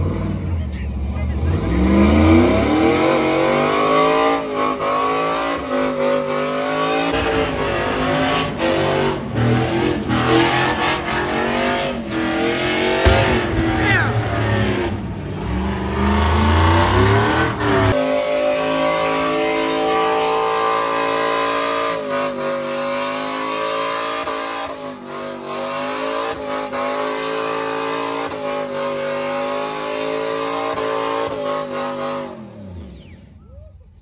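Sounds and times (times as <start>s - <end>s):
engine revving high: 1.2s - 33.3s.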